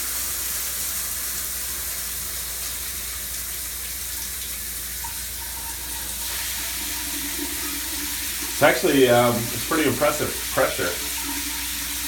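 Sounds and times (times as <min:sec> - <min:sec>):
water spraying from shower head: 0:06.0 - 0:12.0.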